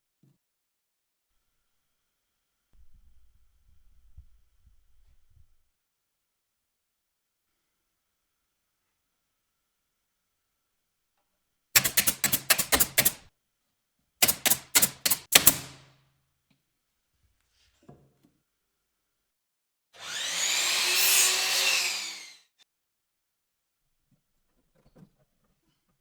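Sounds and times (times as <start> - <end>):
sharp tapping: 11.8 - 13.2, 14.2 - 15.8
loud whirring rasping tool: 20.0 - 22.6.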